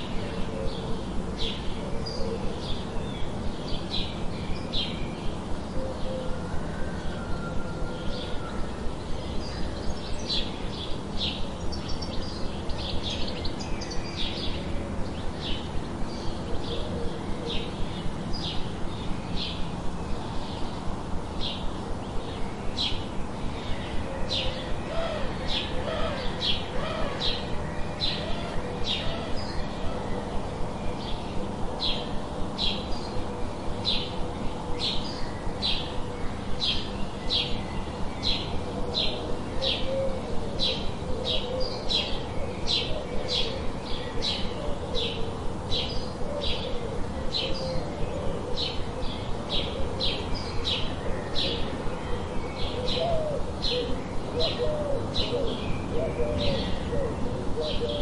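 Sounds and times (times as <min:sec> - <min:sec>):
low background noise: 0:00.0 - 0:58.0.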